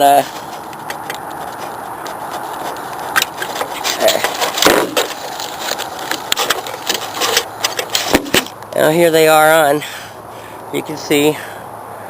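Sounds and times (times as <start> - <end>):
small clicks knocks and rustles: 0.3 - 8.7.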